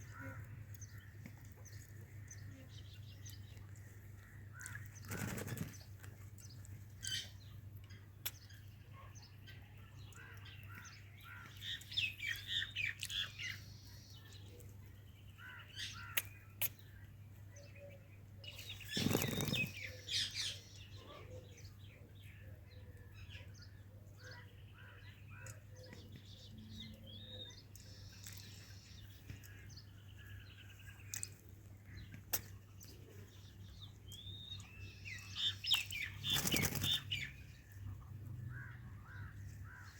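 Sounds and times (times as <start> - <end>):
wing flapping: 5.0 - 5.8, 18.8 - 19.8, 36.2 - 37.0.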